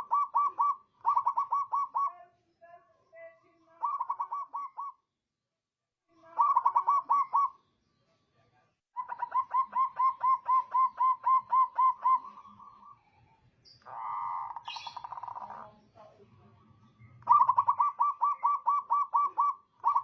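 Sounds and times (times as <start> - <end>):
dove cooing: 0.0 - 2.2, 3.8 - 5.0, 6.3 - 7.6, 9.0 - 13.0, 13.8 - 15.8, 17.2 - 20.0.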